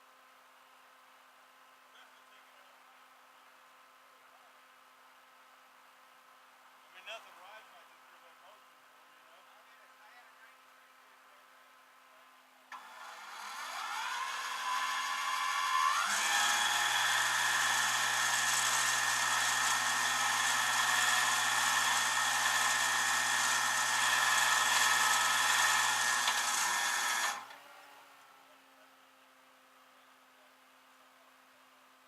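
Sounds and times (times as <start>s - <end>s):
power tool motor whining: 12.7s - 27.7s.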